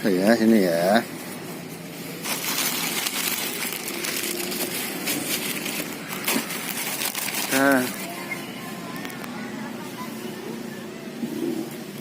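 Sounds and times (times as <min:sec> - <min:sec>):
crinkling crackling rustle: 0:01.0 - 0:09.4.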